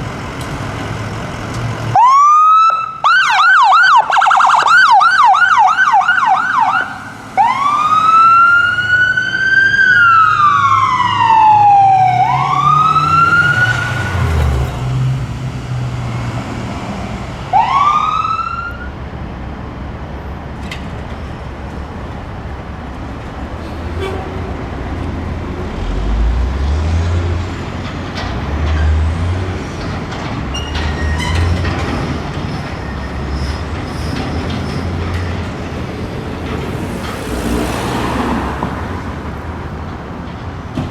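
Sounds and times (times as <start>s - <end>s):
engines and road traffic: 0.0s - 40.9s
emergency vehicle siren: 1.9s - 14.7s, 17.4s - 19.0s.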